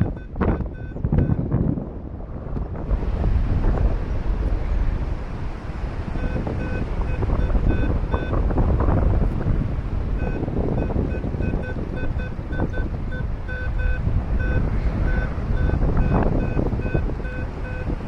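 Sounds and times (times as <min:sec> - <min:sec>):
variometer beeping in short pulses: 0:00.0 - 0:01.4, 0:06.2 - 0:08.4, 0:10.2 - 0:18.0
wind rushing over microphone: 0:00.0 - 0:18.0.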